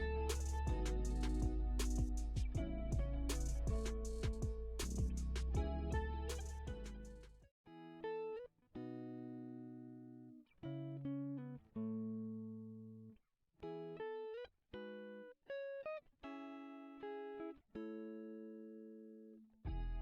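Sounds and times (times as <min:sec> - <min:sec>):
plucked guitar chords: 0:00.0 - 0:13.0.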